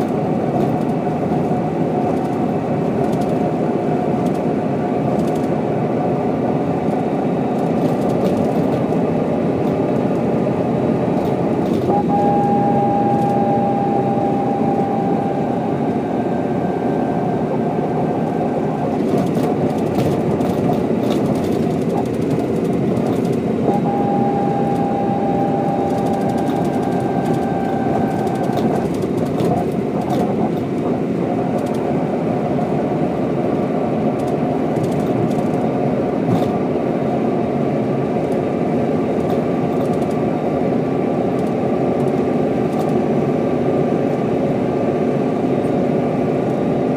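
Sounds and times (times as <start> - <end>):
thin steady whine: 0.0 - 35.0
bus diesel engine running: 0.0 - 46.9.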